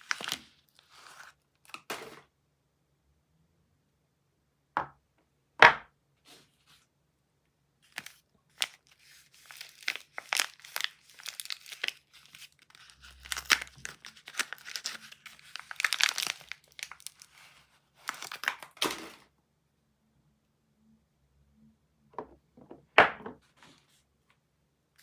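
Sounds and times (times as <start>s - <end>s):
wrapper crinkling and tearing: 0.0s - 1.9s, 7.8s - 19.2s.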